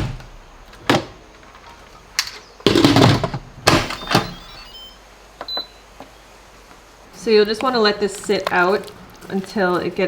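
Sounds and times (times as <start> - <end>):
short high beep: 3.8 - 5.8.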